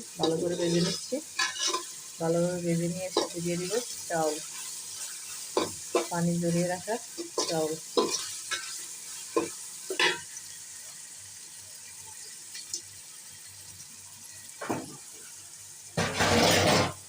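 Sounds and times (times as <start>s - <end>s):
onions sizzling in oil: 0.0s - 17.0s
spoon scraping a pot: 0.2s - 2.0s, 7.2s - 8.8s.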